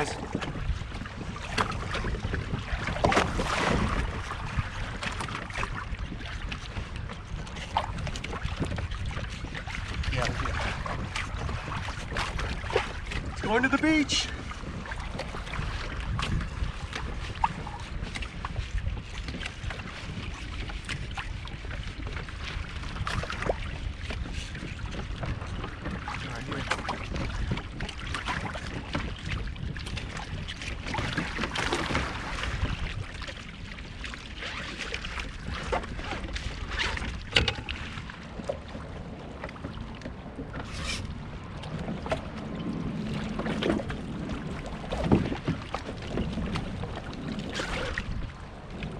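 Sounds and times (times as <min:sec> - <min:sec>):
water against a kayak: 0:00.0 - 0:48.9
wind rumbling on microphone: 0:00.0 - 0:48.9
small knocks and clicks: 0:37.3 - 0:37.8.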